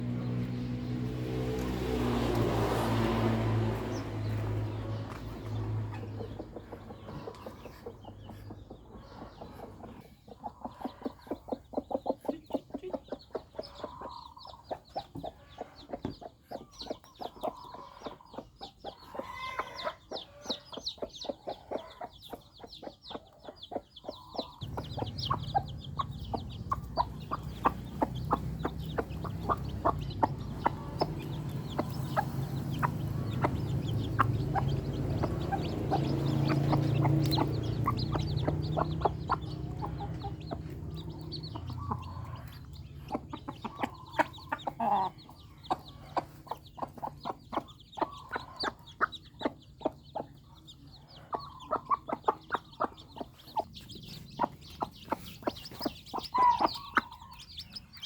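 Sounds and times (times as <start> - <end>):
chickens clucking: 0.0 - 58.0
chicks peeping: 0.0 - 58.0.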